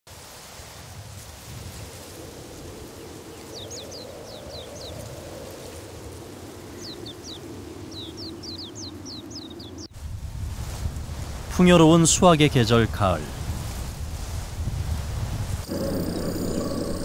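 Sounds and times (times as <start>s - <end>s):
countryside ambience hiss: 0.1s - 17.0s
small birds chirping: 2.8s - 5.7s, 6.6s - 9.9s, 15.6s - 17.0s.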